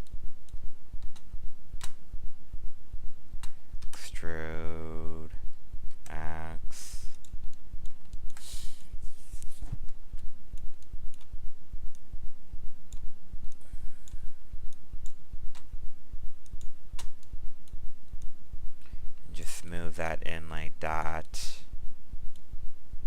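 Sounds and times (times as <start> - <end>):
computer mouse clicks: 0.0 - 2.0, 7.1 - 8.5, 9.4 - 11.3
low electrical hum: 0.0 - 23.0.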